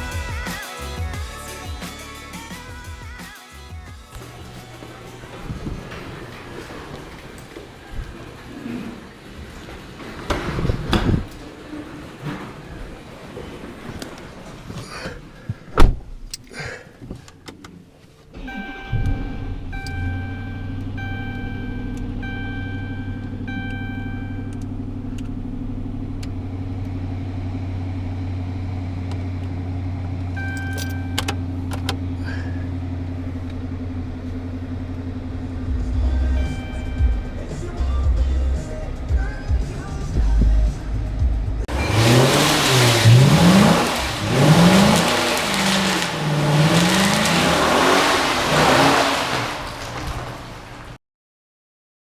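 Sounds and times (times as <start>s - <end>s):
car engine starting and idling: 0.0s - 51.0s
dashboard warning chime: 18.4s - 24.7s, 30.4s - 31.4s, 36.4s - 37.4s, 41.7s - 44.9s.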